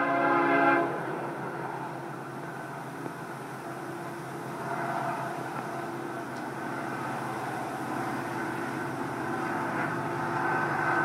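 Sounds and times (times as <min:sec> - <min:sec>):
diesel locomotive horn chord: 0:00.0 - 0:01.2
diesel locomotives running: 0:00.0 - 0:11.0.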